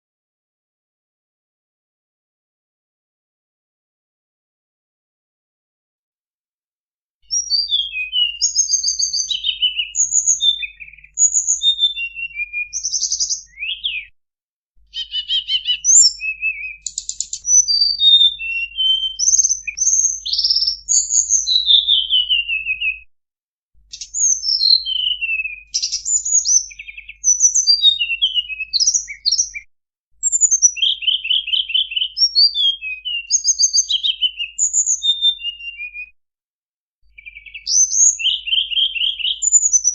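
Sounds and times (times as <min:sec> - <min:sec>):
bird chirps trills and whistles: 0:07.3 - 0:14.2, 0:14.9 - 0:23.1, 0:23.8 - 0:36.1, 0:37.0 - 0:39.9.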